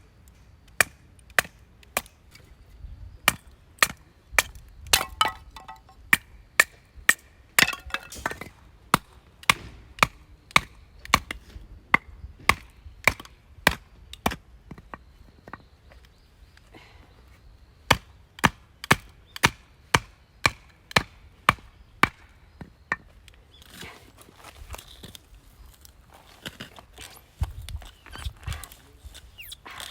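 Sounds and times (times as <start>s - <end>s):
blade chopping wood: 3.3s - 6.7s, 7.6s - 11.3s.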